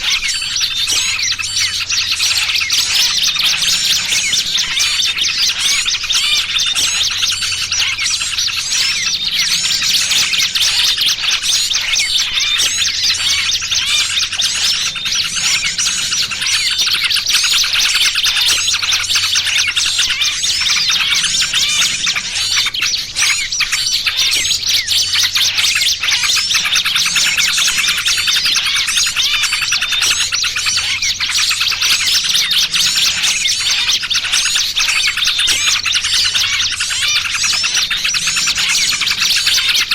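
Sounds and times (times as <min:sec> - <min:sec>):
bird distress calls: 0:00.0 - 0:39.9
bulbul calls: 0:00.0 - 0:39.9.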